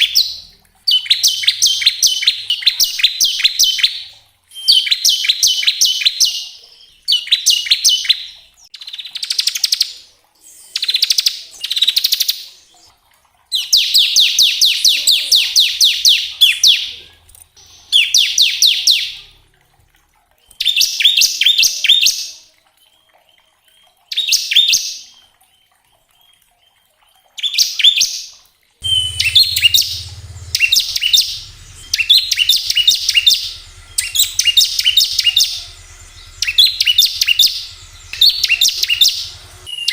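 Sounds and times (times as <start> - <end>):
low hum: 28.8 - 39.7
bird singing rapid high notes: 28.8 - 39.9.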